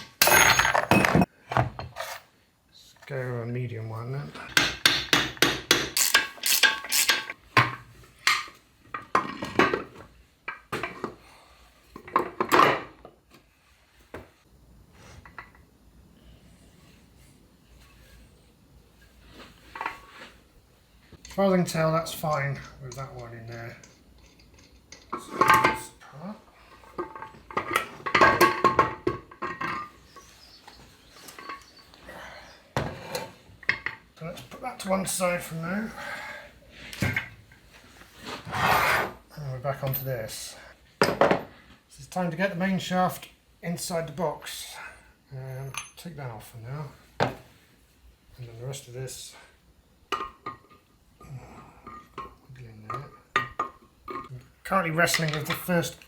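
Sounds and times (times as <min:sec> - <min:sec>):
steel parts clinking: 0:00.0 - 0:01.3, 0:05.9 - 0:07.4.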